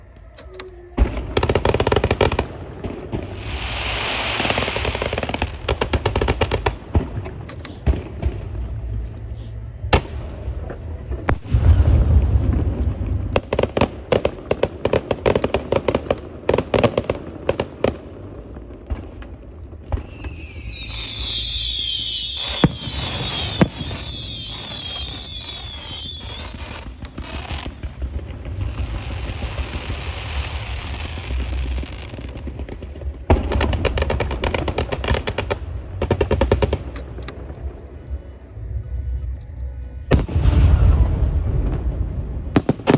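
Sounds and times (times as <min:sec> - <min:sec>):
whistling firework shots: 0:00.6 - 0:06.9, 0:13.4 - 0:18.0, 0:19.9 - 0:32.4, 0:42.6 - 0:42.9
fireworks cracking and banging: 0:01.0 - 0:08.6, 0:11.3 - 0:37.8, 0:40.1 - 0:42.9
firework crackling: 0:01.1 - 0:08.6, 0:11.3 - 0:37.2, 0:40.1 - 0:42.9
firework hissing burst: 0:03.2 - 0:06.0, 0:20.1 - 0:27.9.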